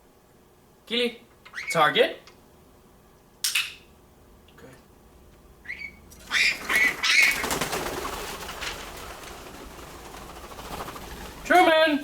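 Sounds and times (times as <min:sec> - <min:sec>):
parrot squawking: 0:01.5 - 0:01.9, 0:05.6 - 0:07.7
noisy rustle: 0:06.2 - 0:12.0.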